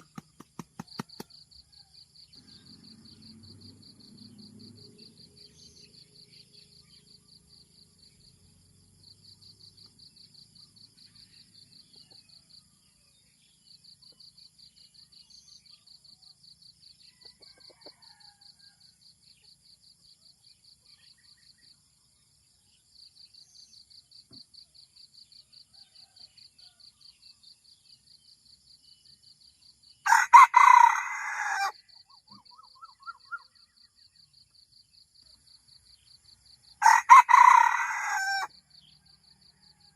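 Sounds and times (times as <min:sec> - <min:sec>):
rooster crowing: 0:30.0 - 0:31.8, 0:36.8 - 0:38.5.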